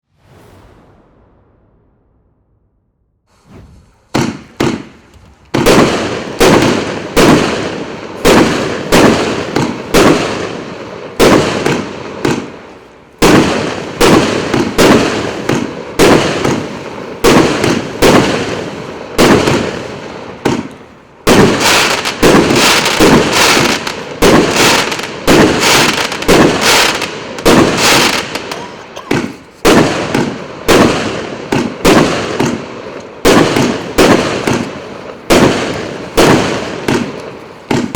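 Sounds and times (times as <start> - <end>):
fireworks bangs: 0.0 - 37.9.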